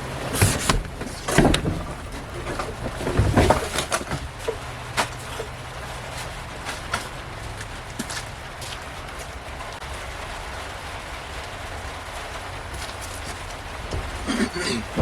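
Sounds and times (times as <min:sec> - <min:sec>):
canopy frame knocks and clanks: 0:00.0 - 0:07.6, 0:12.8 - 0:15.0.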